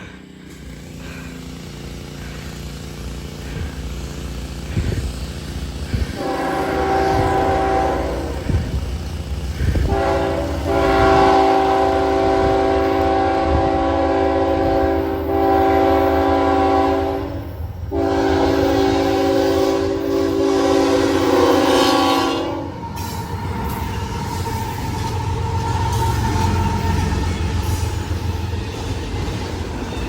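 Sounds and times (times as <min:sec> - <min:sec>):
low train rumble: 0:00.0 - 0:30.0
locomotive air horn blasts: 0:05.9 - 0:08.9, 0:09.5 - 0:27.6.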